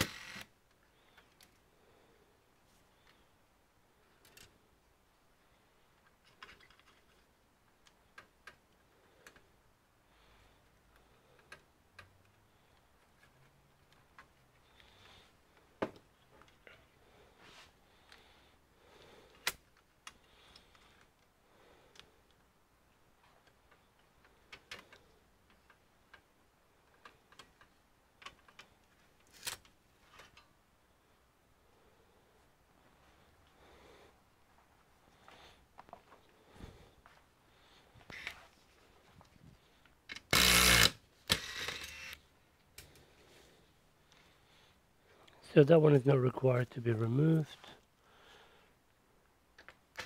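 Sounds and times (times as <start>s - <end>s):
light clicks and taps of parts: 0.7s - 1.7s, 6.0s - 9.6s, 10.6s - 16.7s, 21.9s - 30.6s.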